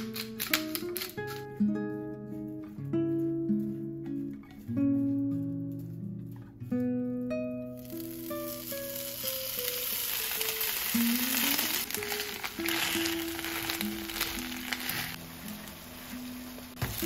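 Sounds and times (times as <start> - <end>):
potatoes sizzling in oil: 7.7 - 17.0.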